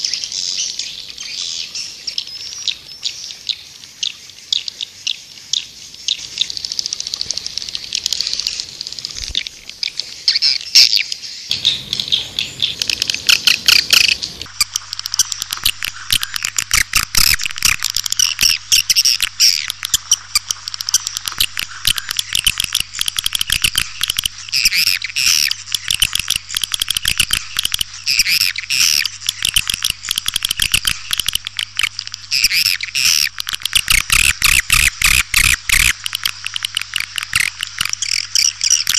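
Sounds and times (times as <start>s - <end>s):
faint low hum: 11.5s - 38.9s
swiftlets twittering: 11.5s - 38.9s.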